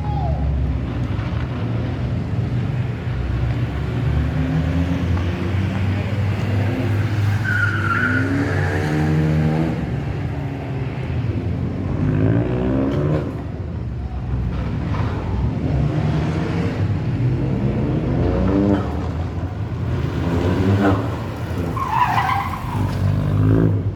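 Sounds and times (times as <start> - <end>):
rally car engine revving: 0.6 - 13.7, 14.3 - 23.9
tyre squeal: 7.2 - 9.2, 20.9 - 23.2.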